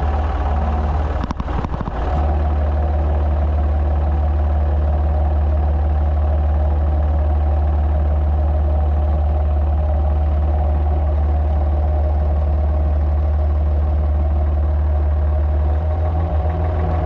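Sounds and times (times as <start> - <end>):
tractor engine running: 0.0 - 17.0
knocks and clatter: 1.1 - 2.4.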